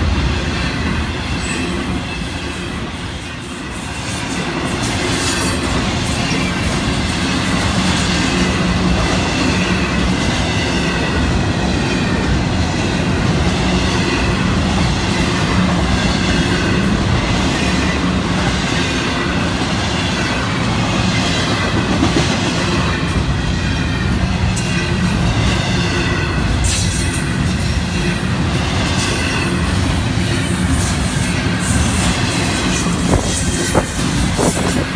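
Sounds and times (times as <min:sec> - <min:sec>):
faint wavering squeal: 0:00.0 - 0:03.8
freight train rumbling past: 0:00.0 - 0:34.9.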